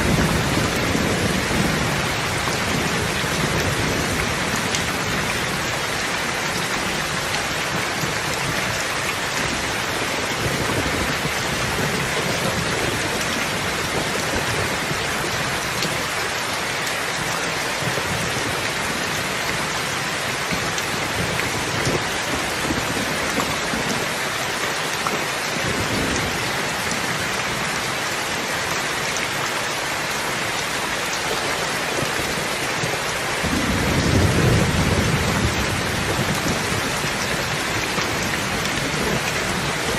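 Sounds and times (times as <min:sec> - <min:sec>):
steady rain falling: 0:00.0 - 0:39.9
thunder rumble: 0:32.0 - 0:39.9.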